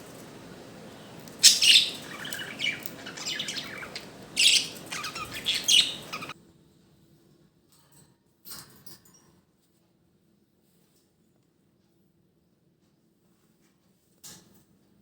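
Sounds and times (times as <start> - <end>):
budgerigars chirping and chattering: 1.2 - 6.3.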